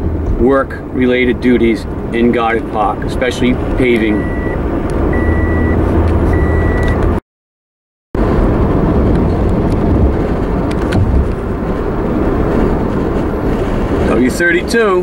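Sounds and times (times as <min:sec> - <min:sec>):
car driving road noise: 0:00.0 - 0:07.2, 0:08.2 - 0:15.0
high electronic beep: 0:04.1 - 0:07.0.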